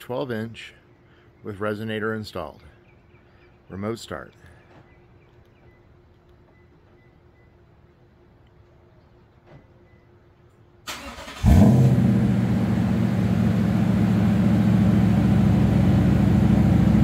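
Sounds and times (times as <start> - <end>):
truck engine cold idle: 10.9 - 17.0.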